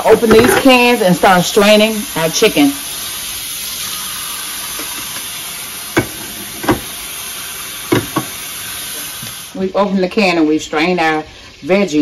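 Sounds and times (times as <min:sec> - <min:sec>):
steady hiss: 0:00.0 - 0:12.0
sharp knocks of cans: 0:06.0 - 0:06.9, 0:07.9 - 0:08.4.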